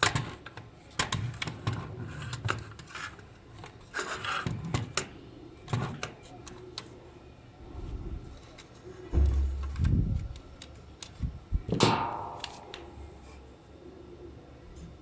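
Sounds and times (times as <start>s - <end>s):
low rumble: 9.1s - 10.4s.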